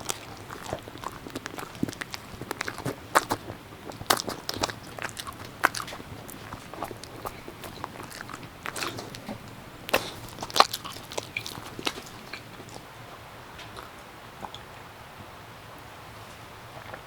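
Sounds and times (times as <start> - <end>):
irregular crunches and clicks: 0.0 - 12.9.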